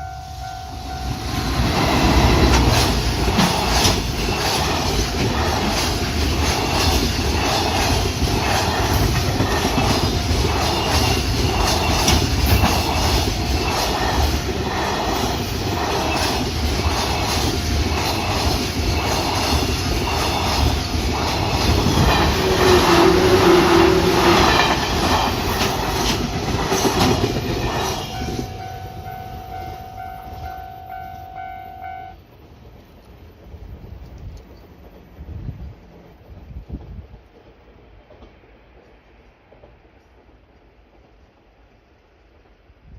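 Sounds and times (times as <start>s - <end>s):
train wheels clickety-clack: 0.9s - 28.7s, 32.4s - 42.9s
steady pitched tone: 28.1s - 32.2s.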